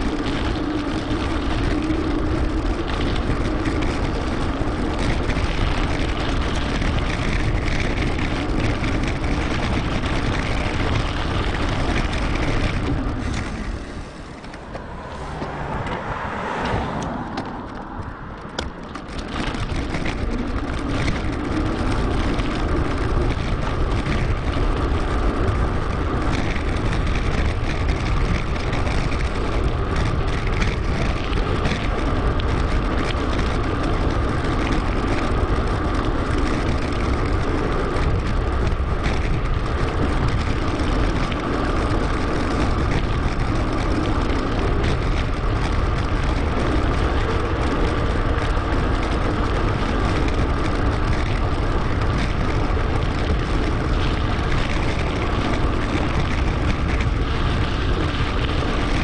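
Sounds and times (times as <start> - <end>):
small rattles: 0.0 - 15.0, 17.0 - 59.0
tyre rolling noise: 0.0 - 59.0
wind rush: 0.0 - 59.0.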